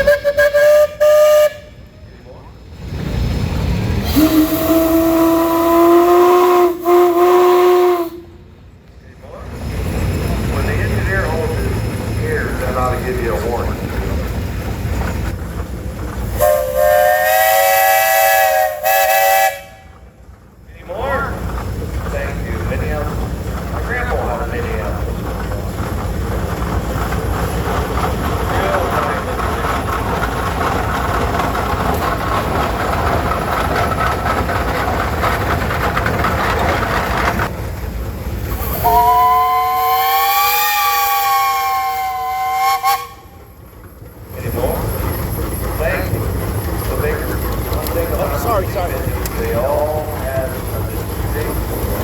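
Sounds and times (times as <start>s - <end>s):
steam whistle blast: 0.0s - 1.8s, 4.0s - 8.4s, 16.4s - 19.9s, 38.6s - 43.4s
engine low rumble: 0.0s - 17.4s, 19.5s - 39.9s, 43.1s - 52.0s
steam whistle chord: 38.8s - 43.2s.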